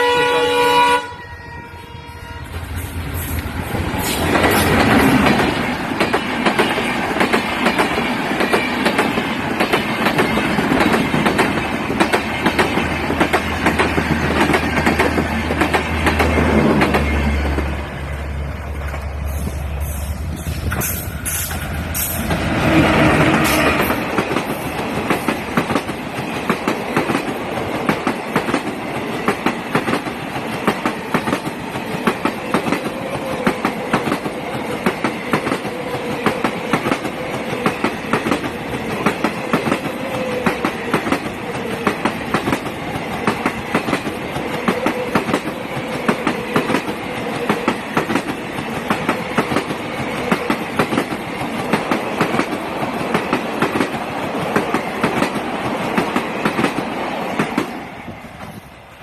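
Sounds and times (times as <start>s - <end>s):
train wheels clattering over rail joints: 3.2s - 17.1s.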